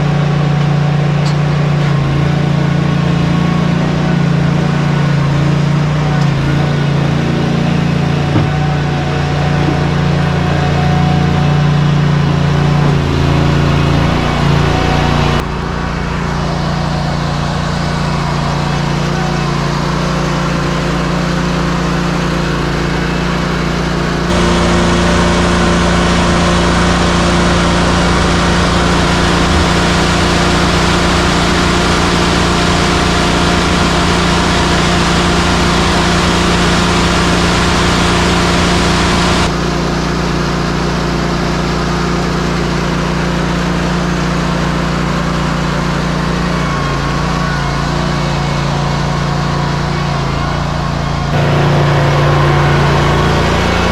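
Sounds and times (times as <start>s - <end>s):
mixer truck diesel engine running: 23.9s - 39.9s, 51.1s - 53.9s.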